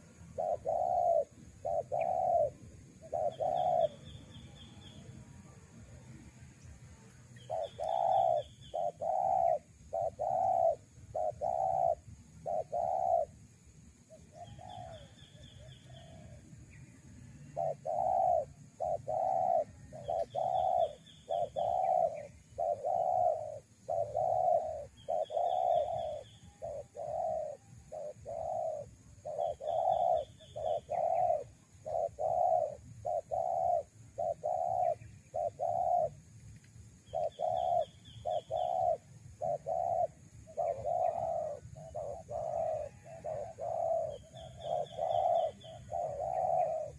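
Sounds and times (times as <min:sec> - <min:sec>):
doves cooing: 0:00.0 - 0:05.1, 0:07.4 - 0:13.4, 0:14.1 - 0:16.4, 0:17.4 - 0:36.3, 0:37.1 - 0:46.9
higher bird trill: 0:07.4 - 0:13.3, 0:17.6 - 0:36.1, 0:37.1 - 0:46.9.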